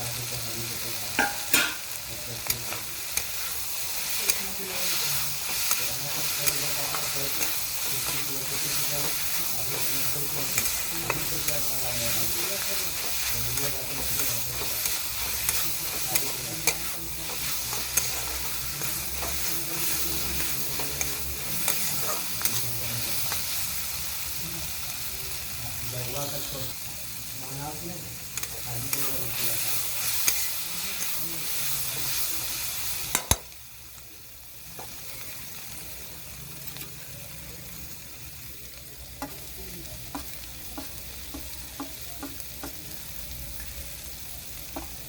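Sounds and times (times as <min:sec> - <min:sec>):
vegetables sizzling in oil: 0:00.0 - 0:45.0
spatula scraping pan: 0:01.2 - 0:23.7, 0:28.4 - 0:31.2.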